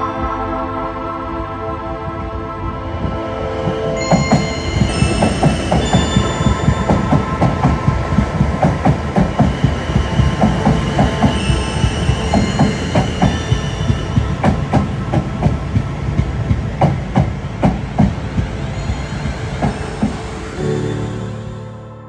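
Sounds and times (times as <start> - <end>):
train wheels clattering over rail joints: 4.1 - 20.6.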